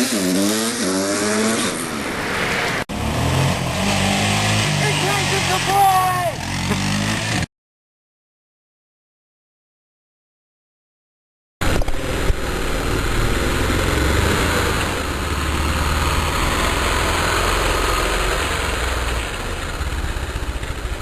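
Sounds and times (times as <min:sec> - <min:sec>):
motorcycle engine rumbling: 0:11.6 - 0:21.0.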